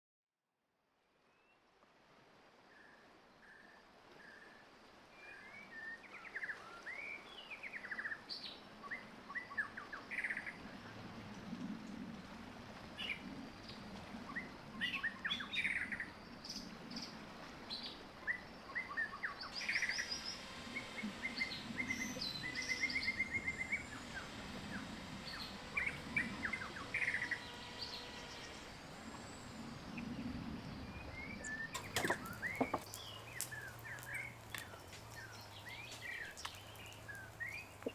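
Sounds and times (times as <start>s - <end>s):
small birds chirping and singing: 17.8s - 37.9s.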